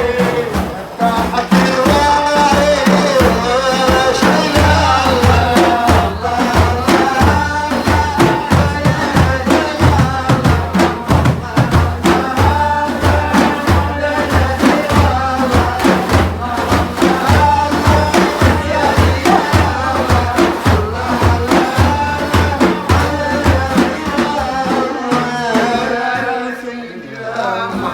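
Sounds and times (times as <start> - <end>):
frame drums beating: 0.0 - 27.9
voices chanting a wavering melody: 0.0 - 27.9.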